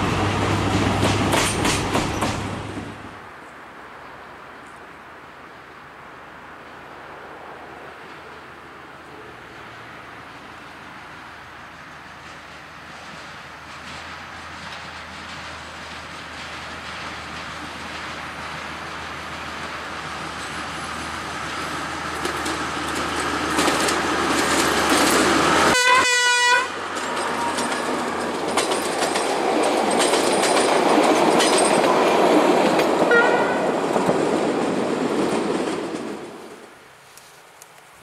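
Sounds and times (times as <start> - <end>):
diesel train passing: 0.0 - 3.5, 5.8 - 37.0
wheel clatter: 22.1 - 25.6, 26.8 - 32.1
train horn blast: 25.6 - 26.8, 33.1 - 33.8.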